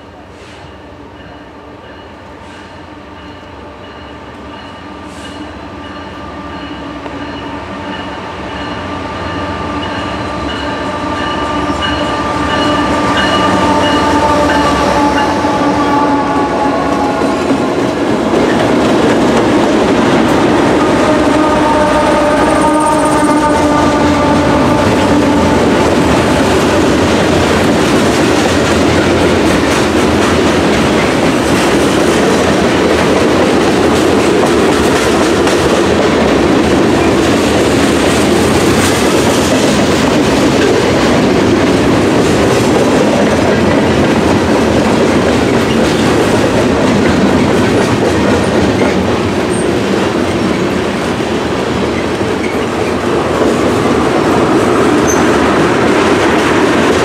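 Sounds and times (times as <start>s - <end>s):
train wheels clattering on rails: 0.4s - 57.0s
train horn blast: 8.8s - 18.1s, 20.4s - 27.9s.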